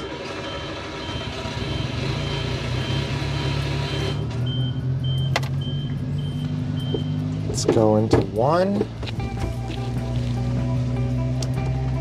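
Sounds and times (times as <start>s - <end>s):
small engine idling: 0.0s - 8.1s
reverse warning beeps: 0.2s - 7.7s.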